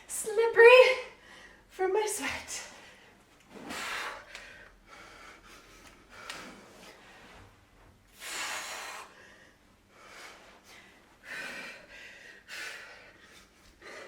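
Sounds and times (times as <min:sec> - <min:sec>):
woman breathing hard: 0:02.6 - 0:07.4, 0:08.1 - 0:14.0.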